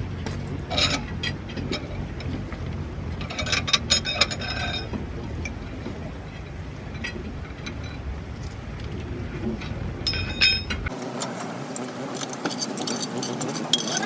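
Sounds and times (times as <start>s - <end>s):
tractor engine running: 0.0s - 9.0s, 9.7s - 14.0s
metallic clinking and rattling: 10.1s - 14.0s.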